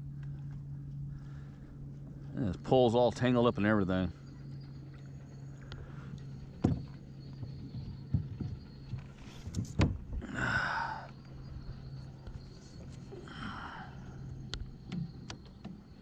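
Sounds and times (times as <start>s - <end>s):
steady low hum: 0.0s - 16.0s
sharp knocks on kayak: 6.6s - 7.0s, 9.6s - 10.1s.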